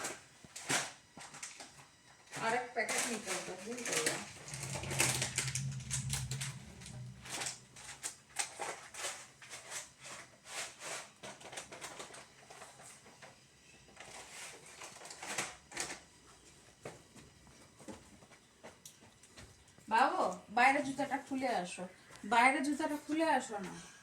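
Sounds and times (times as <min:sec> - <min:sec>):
objects clicking and rustling: 0:02.4 - 0:13.2.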